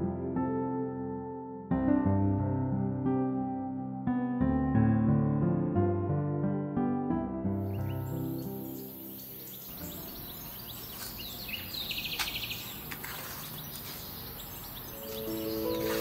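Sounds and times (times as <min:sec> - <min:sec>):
soft music: 0:00.0 - 0:12.8, 0:14.0 - 0:16.0
birds chirping: 0:07.6 - 0:16.0
rapid high bird trill: 0:07.7 - 0:16.0.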